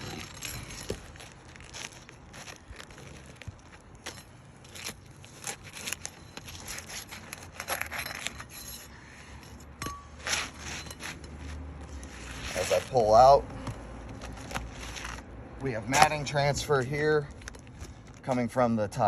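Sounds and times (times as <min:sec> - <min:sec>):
shingles scraping and tearing: 0:00.0 - 0:09.6, 0:10.2 - 0:13.4, 0:14.0 - 0:15.3.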